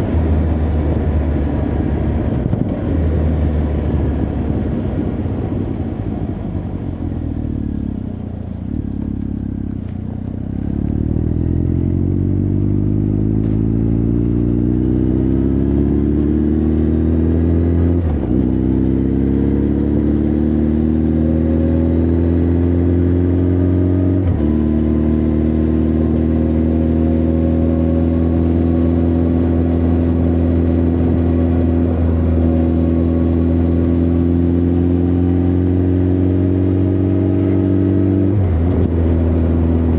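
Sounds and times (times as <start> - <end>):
motorcycle engine accelerating: 0.0 - 39.9
motorcycle gear changes: 8.5 - 11.6.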